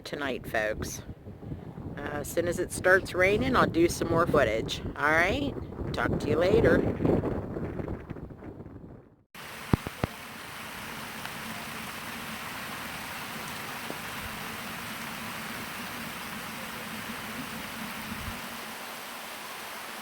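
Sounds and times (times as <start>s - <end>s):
rain falling on ground: 9.4s - 20.0s.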